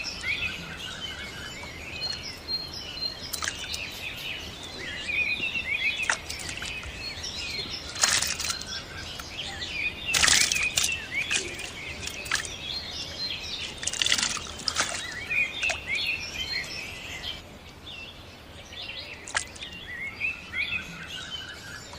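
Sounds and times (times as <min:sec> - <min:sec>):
water splashes: 0:00.0 - 0:16.6, 0:19.1 - 0:19.8
small birds chirping: 0:00.0 - 0:21.9.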